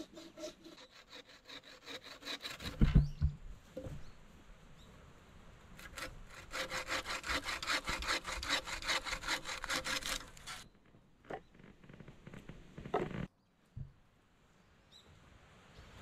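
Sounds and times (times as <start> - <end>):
handsaw cutting branch: 0.0 - 3.0, 5.8 - 10.6.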